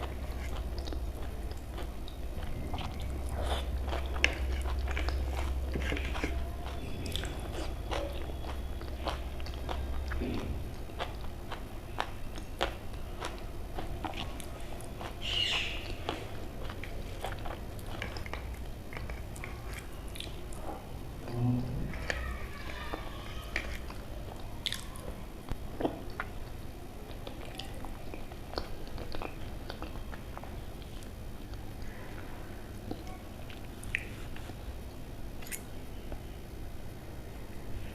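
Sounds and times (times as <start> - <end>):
person chewing and eating: 0.0 - 36.3.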